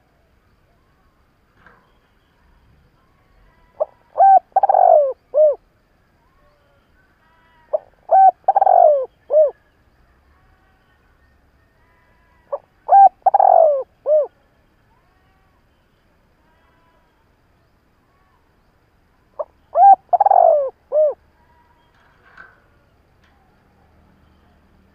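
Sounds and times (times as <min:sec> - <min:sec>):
dove cooing: 0:03.8 - 0:05.6, 0:07.7 - 0:09.6, 0:12.5 - 0:14.3, 0:19.4 - 0:21.2.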